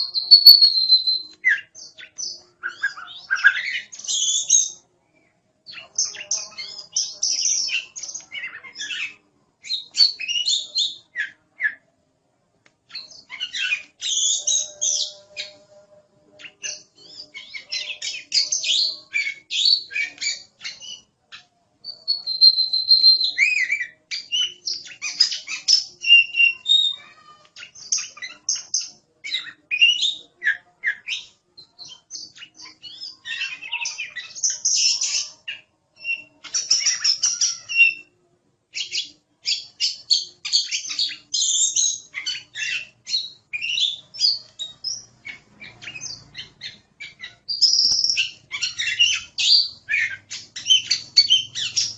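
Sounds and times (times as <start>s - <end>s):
magpie-robin singing: 0.0s - 4.8s, 5.6s - 11.8s, 12.9s - 51.9s.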